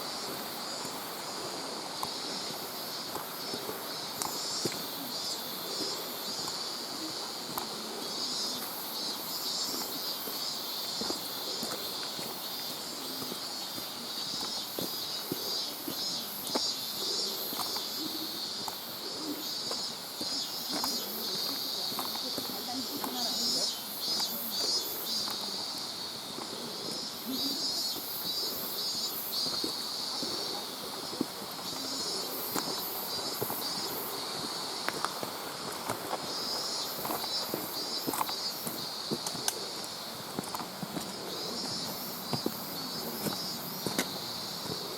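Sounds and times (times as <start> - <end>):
cicadas buzzing: 0.0 - 44.9
footsteps: 9.6 - 25.7, 29.4 - 44.9.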